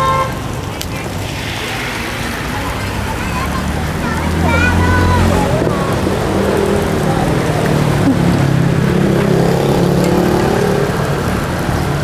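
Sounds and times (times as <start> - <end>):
street noise: 0.0 - 12.0
vehicle engine running: 1.0 - 12.0.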